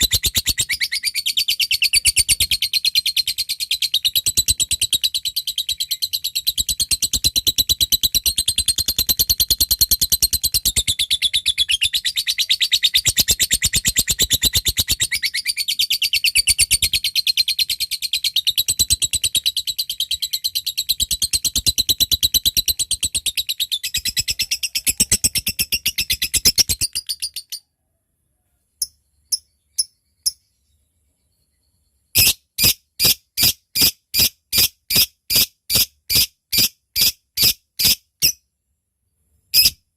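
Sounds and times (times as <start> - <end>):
bird chattering trill: 0.0 - 27.6.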